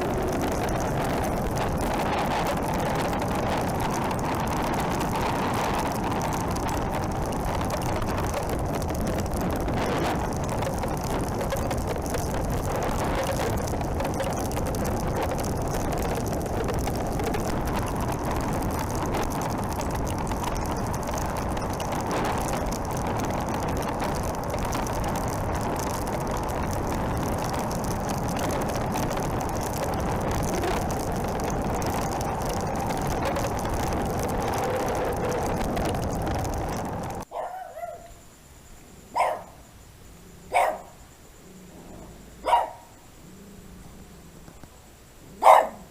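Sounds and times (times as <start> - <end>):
motorcycle engine drone: 0.0 - 37.2
wind rushing over microphone: 0.0 - 37.3.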